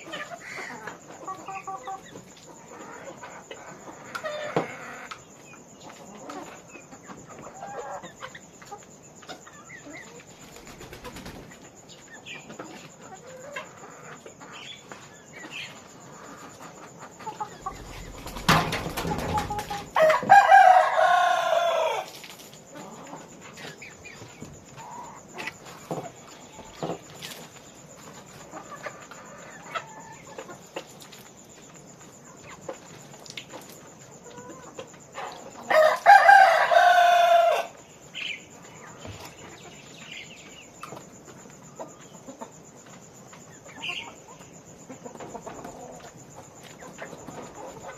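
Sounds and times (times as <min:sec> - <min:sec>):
chickens clucking: 0:00.0 - 0:47.9
rooster crowing: 0:17.6 - 0:22.1, 0:35.6 - 0:37.8.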